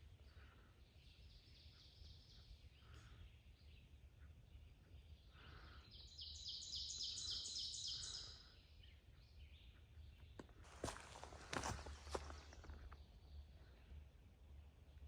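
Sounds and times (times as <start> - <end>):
footsteps: 10.4 - 13.0.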